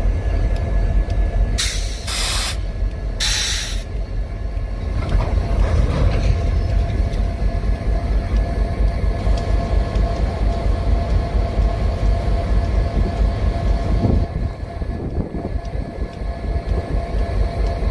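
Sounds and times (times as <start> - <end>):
constant hum: 0.0 - 17.9
freight train rumbling: 0.0 - 17.9
faint ticks: 8.3 - 13.8.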